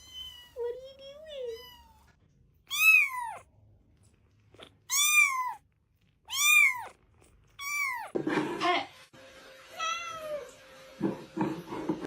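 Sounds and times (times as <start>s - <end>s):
cat meowing: 0.0s - 0.6s, 1.4s - 2.1s, 2.7s - 3.5s, 4.6s - 5.6s, 6.2s - 8.2s.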